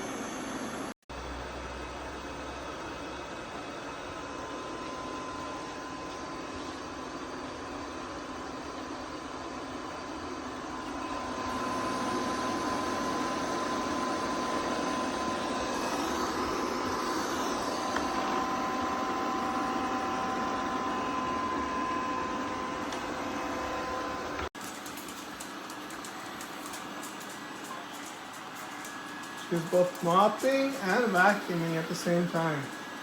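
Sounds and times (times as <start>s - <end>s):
thin high whine: 10.8s - 33.0s
robot vacuum whirring: 11.4s - 33.0s.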